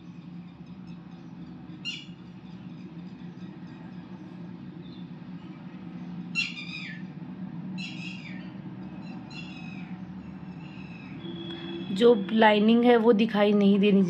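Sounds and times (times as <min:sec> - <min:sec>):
bird squawking: 0:01.8 - 0:02.2, 0:06.3 - 0:07.1, 0:07.8 - 0:10.0.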